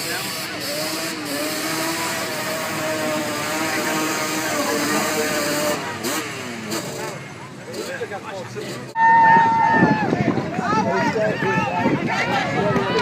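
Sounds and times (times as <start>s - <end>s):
vehicle engine at high revs: 0.0s - 9.0s.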